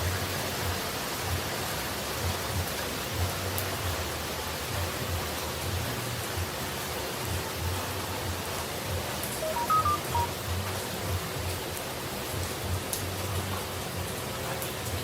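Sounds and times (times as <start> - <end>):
falling water rushing: 0.3 - 15.0
short high notes: 9.4 - 10.3.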